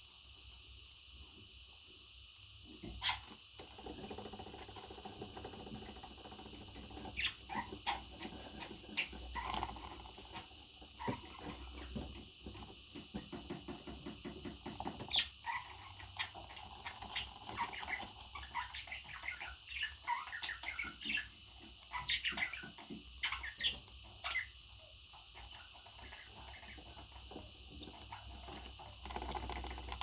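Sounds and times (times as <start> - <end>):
parrot chirps and whistled calls: 17.2 - 24.6.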